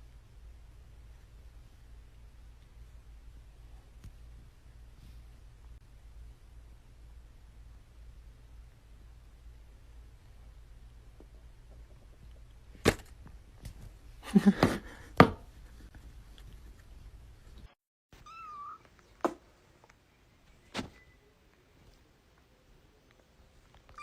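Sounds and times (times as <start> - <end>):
cat meowing: 18.2 - 18.8.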